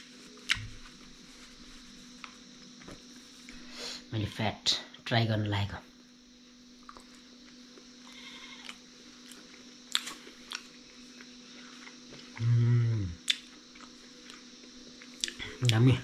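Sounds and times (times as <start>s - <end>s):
man chewing: 6.8s - 15.7s
man humming mmm: 12.3s - 13.3s.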